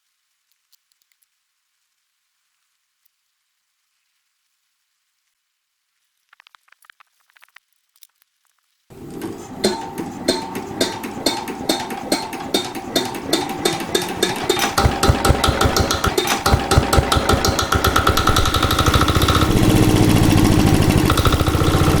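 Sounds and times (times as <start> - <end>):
diesel engine starting and running: 8.9 - 22.0.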